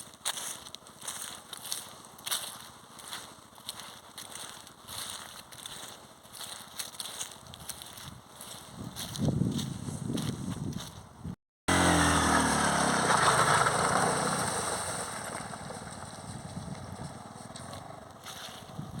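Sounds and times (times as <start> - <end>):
motorbike engine running: 11.7 - 19.0.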